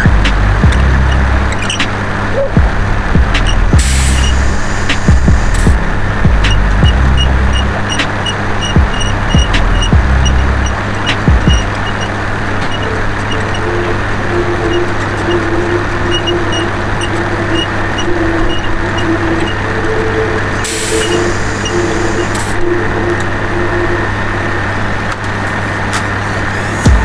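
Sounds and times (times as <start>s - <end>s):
vehicle engine running: 0.0s - 27.0s
hiss: 3.4s - 5.8s, 20.6s - 22.6s.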